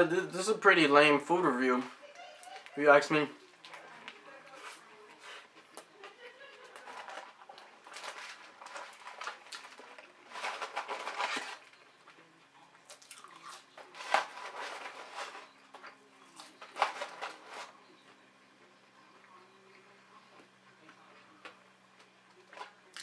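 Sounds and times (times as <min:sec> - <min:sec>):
person chewing and crunching food: 0:07.0 - 0:11.6, 0:12.6 - 0:14.6, 0:22.0 - 0:23.0.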